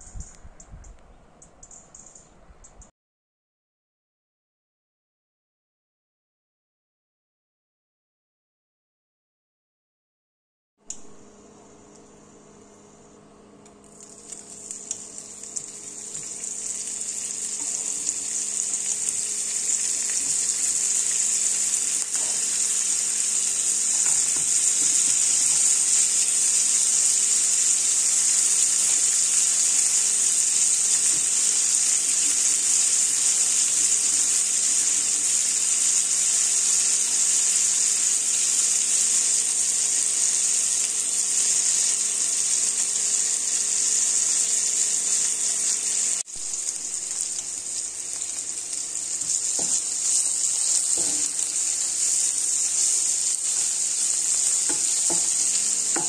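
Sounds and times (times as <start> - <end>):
faint steady hum: 10.9 - 35.2
food sizzling in oil: 13.9 - 56.0.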